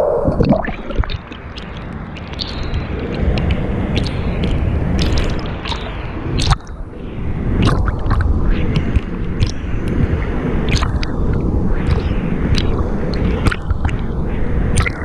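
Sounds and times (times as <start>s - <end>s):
churning water rumble: 0.0s - 15.0s
water drips: 0.3s - 6.8s, 7.6s - 14.1s, 14.7s - 15.0s
water sloshing and splashing: 0.3s - 6.9s, 7.6s - 14.1s, 14.7s - 15.0s.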